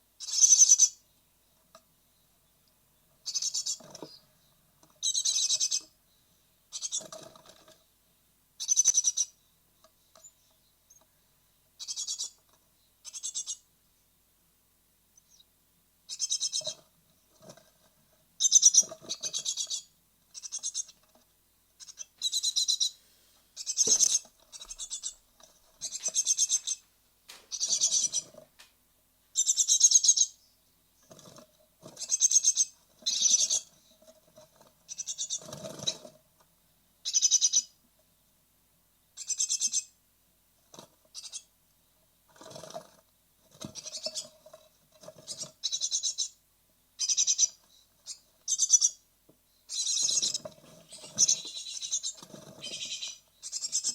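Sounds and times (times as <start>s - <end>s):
nestlings high-pitched calling: 0.2s - 1.0s, 3.2s - 4.3s, 4.9s - 6.0s, 6.7s - 7.7s, 8.6s - 9.4s, 11.8s - 13.7s, 16.1s - 17.5s, 18.4s - 21.1s, 21.8s - 23.0s, 23.6s - 28.4s, 29.3s - 34.1s, 34.8s - 36.1s, 37.0s - 37.8s, 39.2s - 40.0s, 41.1s - 41.5s, 43.6s - 46.4s, 47.0s - 49.0s, 49.7s - 53.9s.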